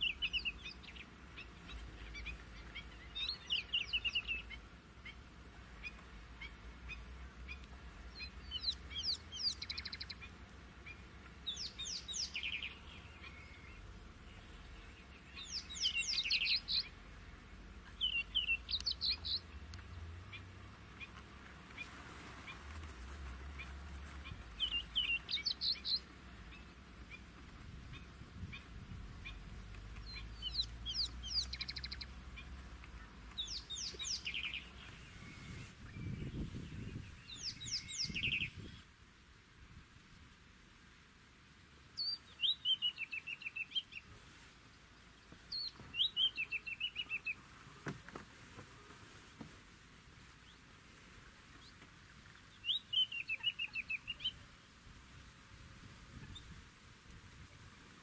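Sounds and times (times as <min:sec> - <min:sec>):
soft bird chirps: 0:00.0 - 0:05.2, 0:05.8 - 0:22.7, 0:23.5 - 0:27.3, 0:27.9 - 0:38.8, 0:42.0 - 0:47.5, 0:51.6 - 0:54.4
bird singing: 0:00.0 - 0:21.2, 0:23.6 - 0:27.3, 0:27.9 - 0:38.8, 0:42.0 - 0:44.1, 0:45.1 - 0:47.5, 0:51.6 - 0:54.4.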